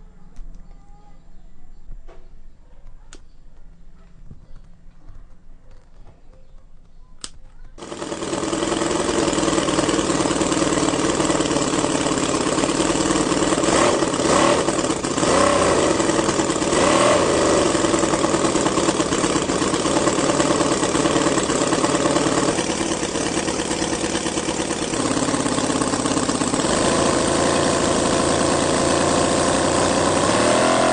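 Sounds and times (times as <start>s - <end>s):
engine starting and running: 7.8s - 30.9s.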